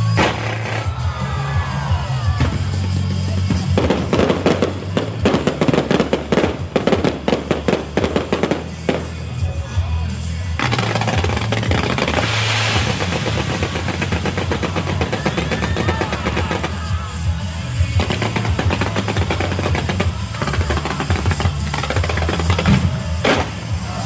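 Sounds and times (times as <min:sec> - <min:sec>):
firecrackers cracking: 0:00.0 - 0:01.2, 0:02.4 - 0:09.4, 0:10.6 - 0:24.0
music: 0:00.0 - 0:24.0
hissing crackling firework spray: 0:10.7 - 0:16.9.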